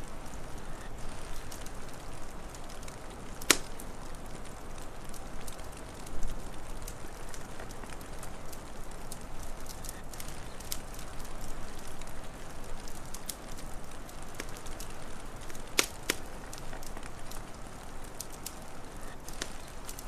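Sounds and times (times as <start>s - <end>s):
steady hiss: 0.0s - 20.0s
wood fire crackling: 0.0s - 20.0s
fire pops: 0.1s - 20.0s.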